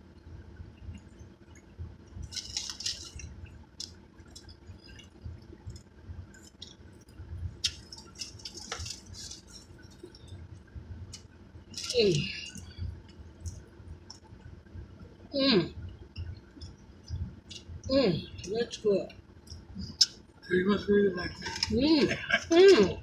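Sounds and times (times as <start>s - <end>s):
steady low rumble: 0.0s - 23.0s
small crackles: 0.8s - 14.5s
wet chewing and lip smacking: 0.9s - 10.5s.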